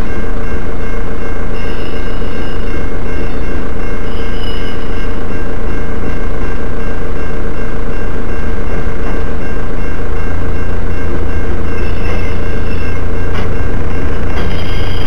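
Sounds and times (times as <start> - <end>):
train wheels rumbling on rail: 0.0 - 15.0
high wheel squeal: 1.5 - 5.2, 11.3 - 15.0.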